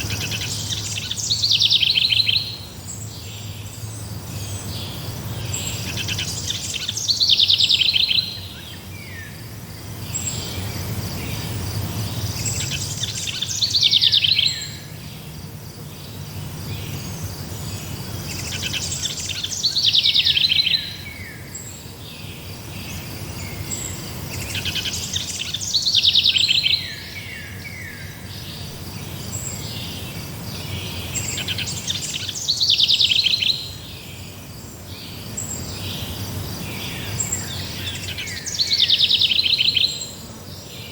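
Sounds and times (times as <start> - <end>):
songbird trilling: 0.0 - 3.6, 4.4 - 9.4, 12.1 - 15.0, 16.8 - 21.7, 22.9 - 34.2, 37.0 - 40.2
faint insect chirping: 0.0 - 40.9.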